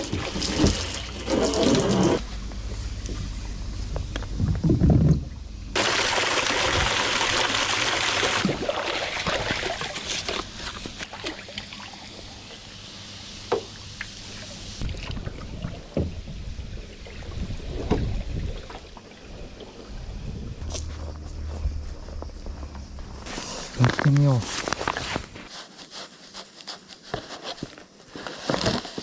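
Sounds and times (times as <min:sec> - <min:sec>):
water pouring: 0:00.0 - 0:02.2, 0:05.8 - 0:12.7, 0:13.7 - 0:20.3
water sloshing and splashing: 0:00.0 - 0:02.2, 0:04.5 - 0:12.5, 0:13.6 - 0:20.8.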